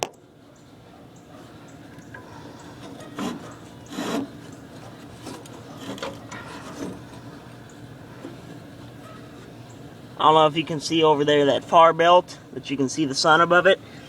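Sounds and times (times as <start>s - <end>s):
faint steady hum: 0.0s - 14.0s
metal lever scraping: 2.1s - 7.3s.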